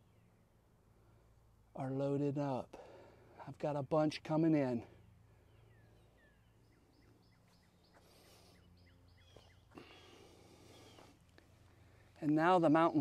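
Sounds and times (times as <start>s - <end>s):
small bird chirping: 5.0s - 11.2s.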